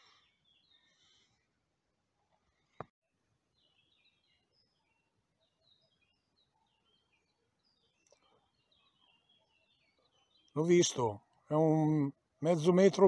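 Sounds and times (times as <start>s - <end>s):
faint songbirds chirping: 0.0s - 13.0s.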